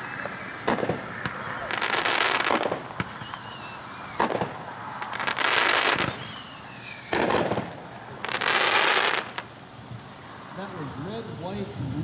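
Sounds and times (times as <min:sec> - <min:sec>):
firework whistle: 0:00.0 - 0:09.4
firework bang: 0:00.0 - 0:09.5
crackling firework bursts: 0:00.0 - 0:12.0.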